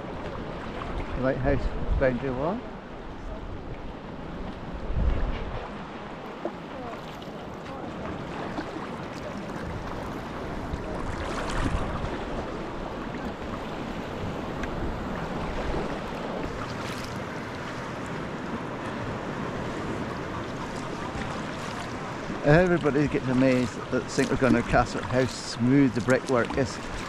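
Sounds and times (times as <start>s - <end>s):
water splashing around kayak: 0.0s - 27.0s
wind on microphone: 3.1s - 6.0s, 9.6s - 22.4s.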